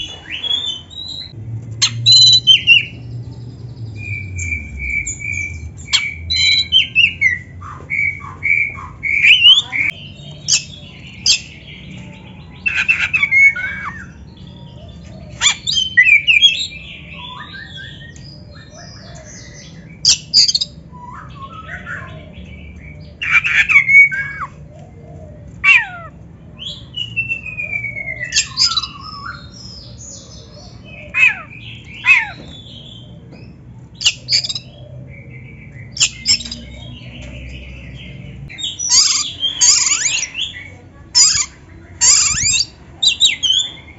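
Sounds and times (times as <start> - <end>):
bird singing whistled notes: 0.0 - 11.6, 26.6 - 29.9.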